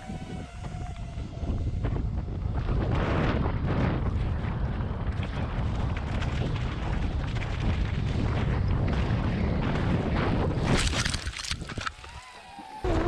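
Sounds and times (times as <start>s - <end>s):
wind rumble on microphone: 0.0s - 13.0s
bike tyres crunching over stones: 5.1s - 12.8s
small clicks and rattles: 10.7s - 12.9s.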